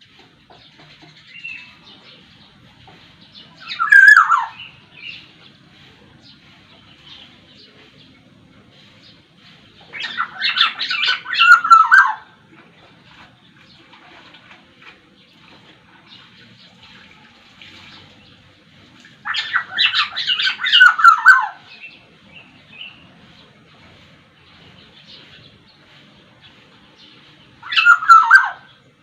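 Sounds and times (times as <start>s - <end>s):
faint small birds chirping: 0.0s - 14.5s
oriole calling: 3.4s - 7.9s, 9.8s - 12.9s, 19.2s - 23.6s, 27.5s - 29.0s.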